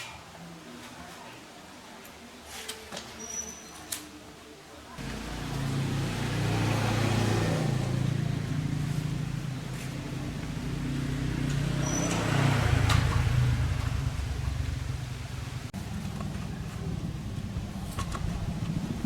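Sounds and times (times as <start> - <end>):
small lawn mower engine running: 5.0 - 19.0.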